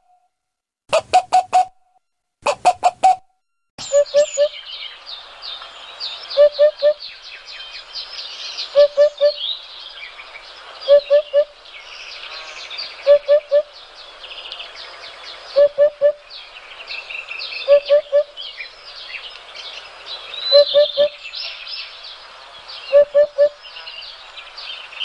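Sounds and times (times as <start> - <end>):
low three-note bird call: 3.8 - 4.7
small birds chirping and trilling: 3.8 - 25.0.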